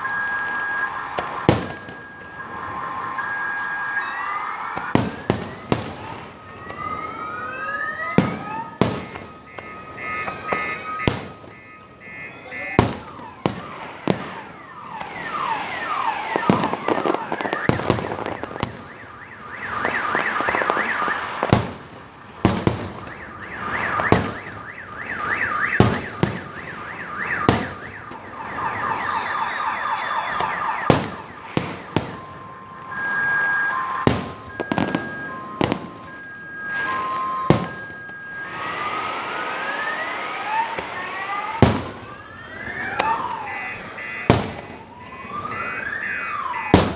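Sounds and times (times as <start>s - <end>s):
steady high tones: 0.0s - 5.0s, 8.0s - 12.8s, 28.4s - 41.6s
whistling rockets: 0.0s - 7.2s, 7.9s - 46.9s
firework bangs: 0.0s - 7.3s, 8.1s - 46.9s.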